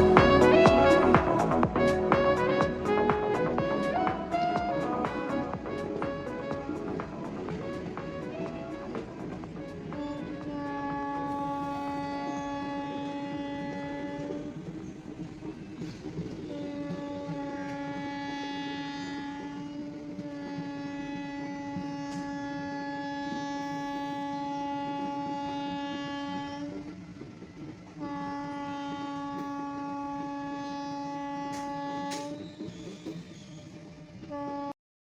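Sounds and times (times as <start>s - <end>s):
low rumble: 0.0s - 17.6s
horn blasts: 0.0s - 34.8s.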